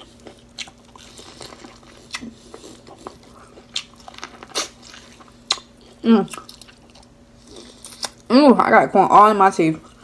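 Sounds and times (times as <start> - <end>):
corn crunching: 0.0 - 5.7
steady low hum: 0.0 - 10.0.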